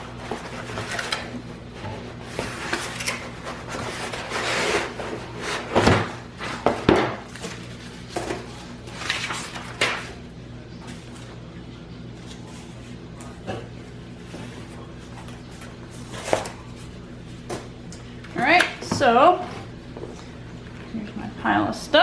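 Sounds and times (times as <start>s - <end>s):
rustling and scraping of packing: 0.0s - 10.2s, 14.2s - 17.7s.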